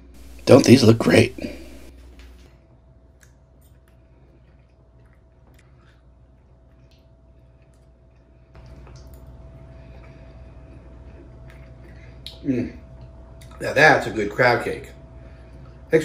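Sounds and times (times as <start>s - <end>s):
steady low hum: 0.0s - 16.0s
man chewing: 3.1s - 13.6s.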